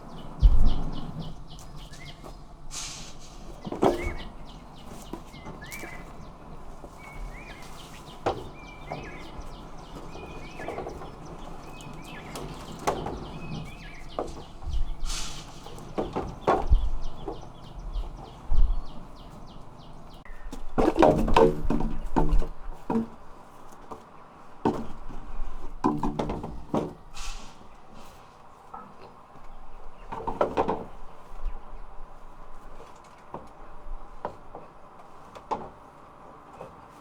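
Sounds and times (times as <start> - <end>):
rustling: 0.0 - 25.8.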